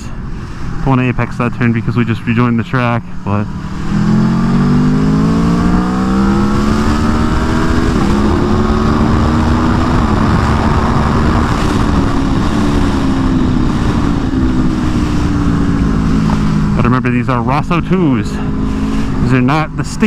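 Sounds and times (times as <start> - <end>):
motorcycle engine accelerating: 3.2 - 20.0
wind rush: 3.4 - 16.8, 18.4 - 19.4.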